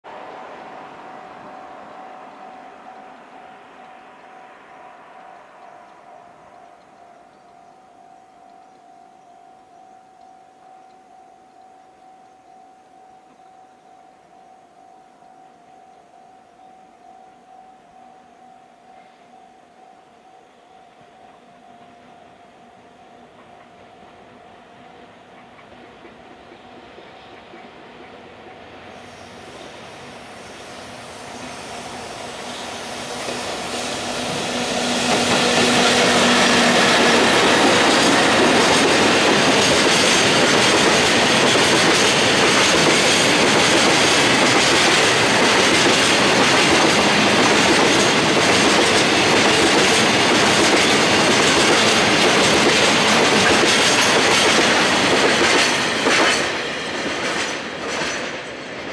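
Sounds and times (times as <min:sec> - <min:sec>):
train approaching hum: 0:00.0 - 0:58.9
train wheels clattering over rail joints: 0:33.1 - 0:58.9.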